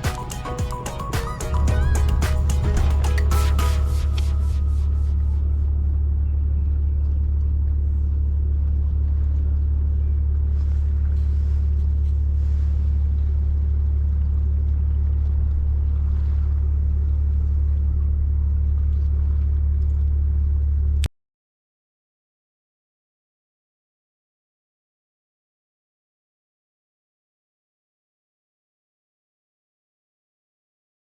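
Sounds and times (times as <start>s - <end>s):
low engine rumble: 0.0s - 21.1s.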